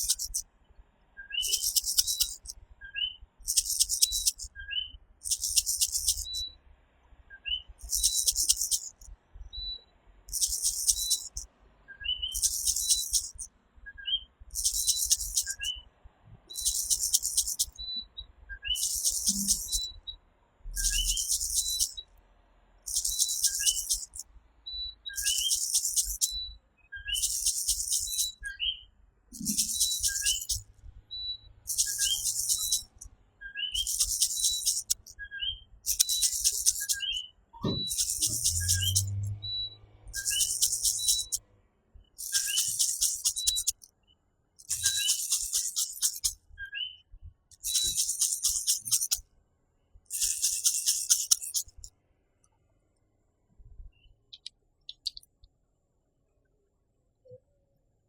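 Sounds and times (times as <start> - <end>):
tree frogs calling: 0.0 - 0.4, 1.3 - 2.6, 3.4 - 4.5, 5.2 - 6.4, 7.8 - 9.1, 10.3 - 11.5, 12.2 - 13.5, 14.5 - 15.7, 16.5 - 17.8, 18.6 - 20.0, 20.8 - 22.0, 22.9 - 24.2, 25.2 - 26.4, 27.1 - 28.4, 29.3 - 30.6, 31.7 - 33.1, 33.7 - 35.2, 35.9 - 37.2, 37.8 - 39.3, 40.2 - 41.4, 42.2 - 43.8, 44.6 - 46.4, 47.6 - 49.2, 50.1 - 51.8
high-pitched buzzing: 3.5 - 4.4, 5.2 - 6.3, 7.8 - 9.0, 10.3 - 11.4, 12.4 - 13.4, 16.6 - 17.7, 18.8 - 19.9, 20.8 - 21.9, 22.9 - 24.2, 25.2 - 26.3, 27.2 - 28.3, 29.4 - 30.6, 31.7 - 33.0, 33.8 - 35.1, 35.9 - 37.0, 37.9 - 39.4, 40.2 - 41.4, 42.2 - 43.8.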